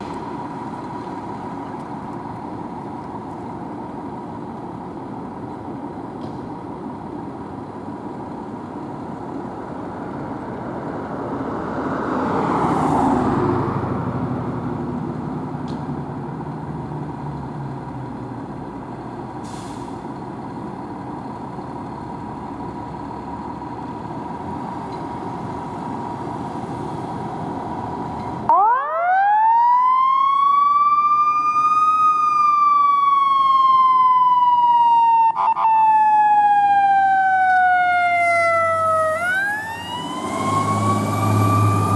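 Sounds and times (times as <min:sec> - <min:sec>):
traffic noise: 0:00.0 - 0:41.9
vehicle passing: 0:10.5 - 0:17.7, 0:37.1 - 0:41.9
fire engine siren: 0:28.5 - 0:41.9.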